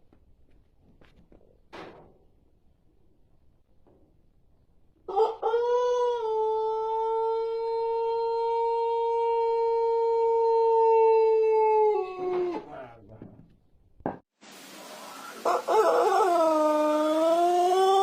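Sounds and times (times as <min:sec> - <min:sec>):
rooster crowing: 0:05.1 - 0:12.6, 0:15.1 - 0:18.0.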